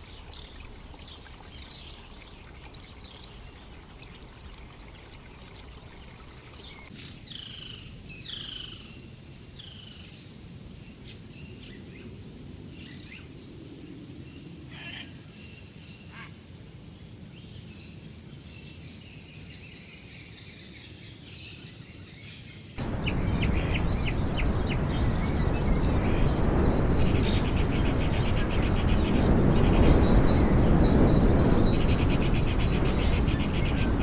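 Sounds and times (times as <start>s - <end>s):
flowing water: 0.0s - 6.9s, 22.8s - 34.0s
wild birds calling: 0.0s - 6.9s, 22.8s - 34.0s.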